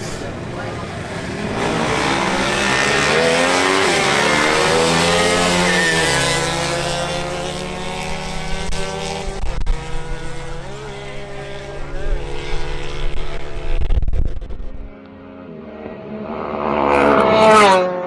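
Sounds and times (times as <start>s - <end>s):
racing motorcycle engine revving: 0.0s - 18.0s.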